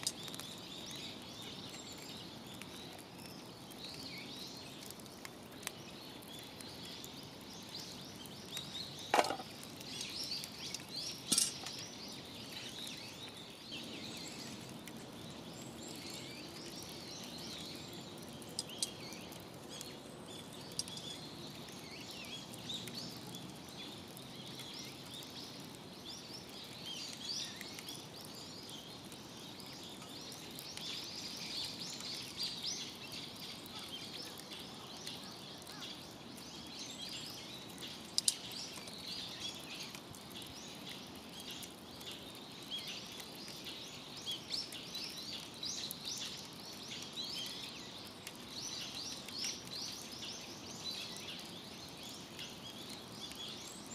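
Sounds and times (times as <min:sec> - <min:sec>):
fire popping: 0:00.0 - 0:53.9
wood fire crackling: 0:00.0 - 0:53.9.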